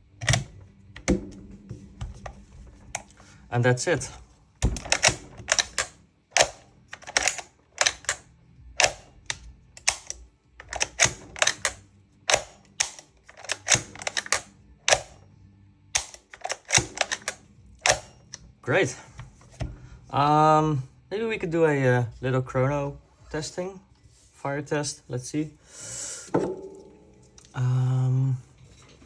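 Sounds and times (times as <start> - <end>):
airsoft gun trigger clicks: 4.7 - 15.2, 16.0 - 18.4.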